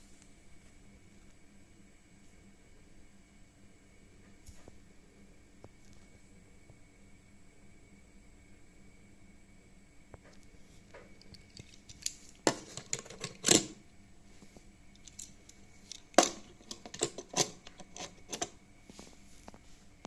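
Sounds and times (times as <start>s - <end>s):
toy cars clattering on plastic track: 15.9s - 18.5s.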